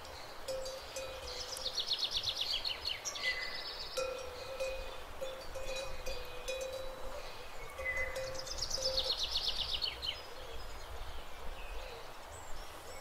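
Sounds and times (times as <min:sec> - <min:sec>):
rural outdoor ambience: 0:00.0 - 0:13.0
songbird singing: 0:00.0 - 0:13.0
faint cowbells ringing: 0:00.5 - 0:01.7, 0:04.0 - 0:09.2.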